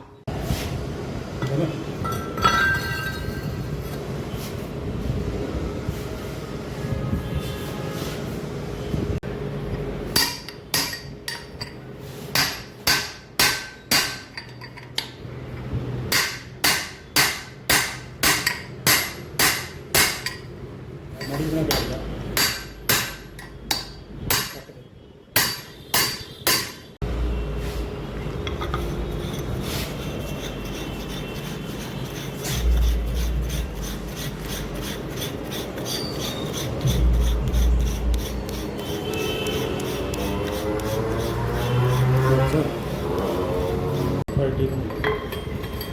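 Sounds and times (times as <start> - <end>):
steady noisy hum: 0.1 - 45.9
hammer striking metal: 10.1 - 15.1, 16.1 - 20.5, 21.2 - 24.7, 25.4 - 27.0.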